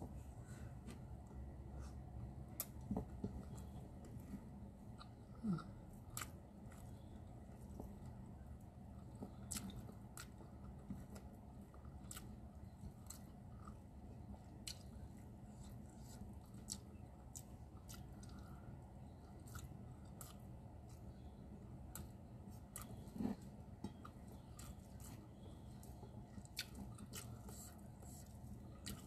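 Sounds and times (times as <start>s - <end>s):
low room hum: 0.0s - 29.0s
person chewing food: 0.1s - 29.0s.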